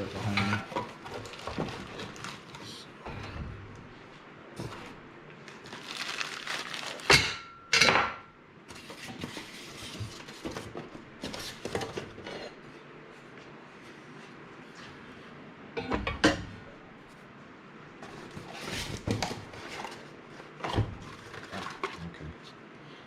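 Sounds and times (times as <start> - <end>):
rustling packaging: 0.0 - 3.0, 4.6 - 7.4, 18.1 - 22.1.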